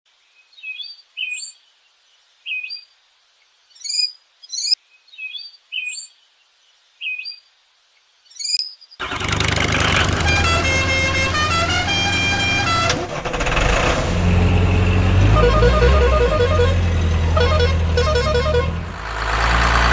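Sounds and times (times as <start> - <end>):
birds chirping and whistling: 3.8 - 6.1, 8.3 - 8.8
loud vehicle engine: 9.0 - 19.9.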